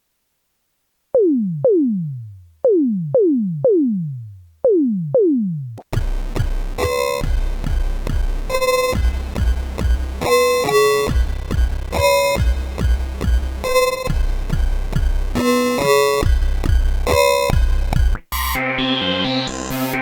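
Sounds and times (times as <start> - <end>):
pulsing low synth bass: 1.2 - 10.4, 11.1 - 15.5.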